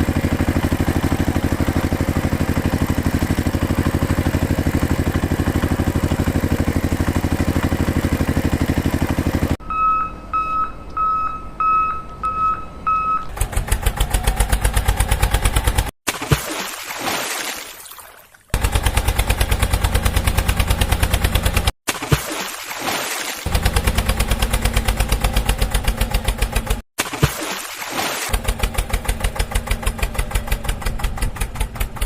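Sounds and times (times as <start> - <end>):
truck engine chugging: 0.0 - 15.9, 18.6 - 21.7, 23.5 - 26.8, 28.4 - 32.0
reversing alarm beeping: 9.6 - 13.3.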